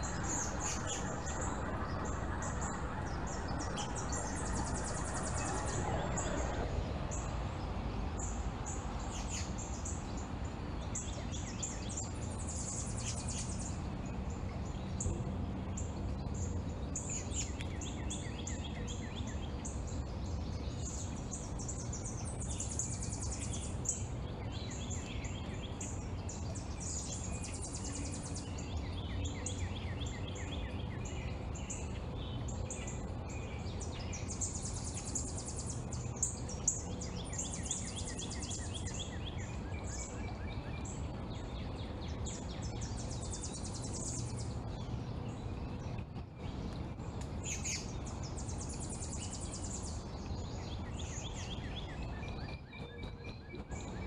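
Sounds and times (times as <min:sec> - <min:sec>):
small birds chirping: 0:00.0 - 0:07.2, 0:20.7 - 0:54.0
low background rumble: 0:00.0 - 0:09.1.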